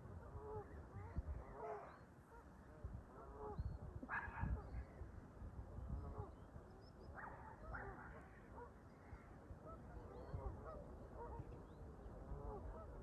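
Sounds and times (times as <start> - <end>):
harsh goose calls: 12.2 - 13.0.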